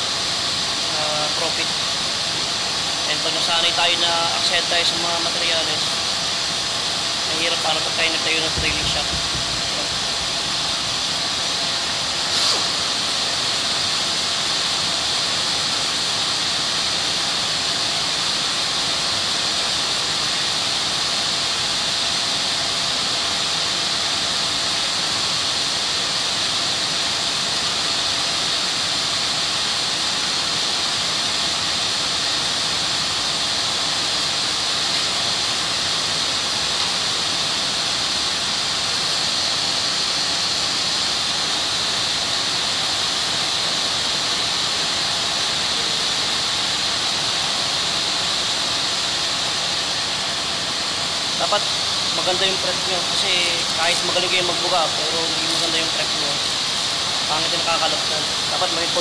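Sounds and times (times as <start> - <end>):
power sander hissing: 49.8 - 59.0.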